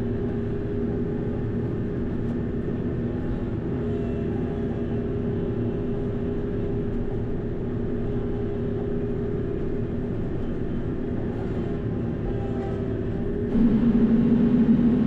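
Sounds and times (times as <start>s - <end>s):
tractor engine humming: 4.4s - 15.0s
hydraulic pump whine: 12.2s - 15.0s.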